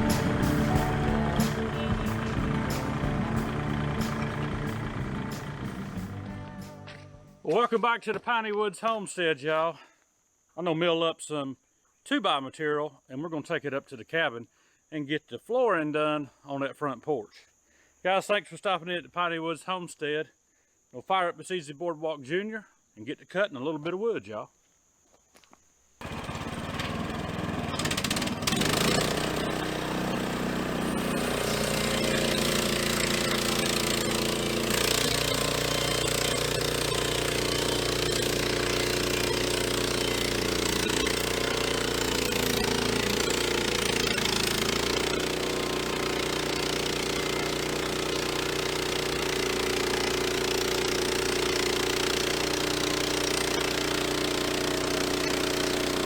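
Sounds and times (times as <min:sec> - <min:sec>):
sawmill engine running: 0:00.0 - 0:07.0, 0:26.0 - 0:56.0.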